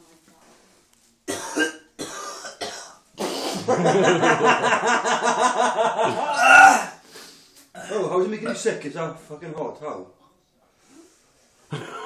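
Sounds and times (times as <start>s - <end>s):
man coughing: 1.3s - 3.7s
man retching and gagging: 6.0s - 7.0s, 7.8s - 8.7s.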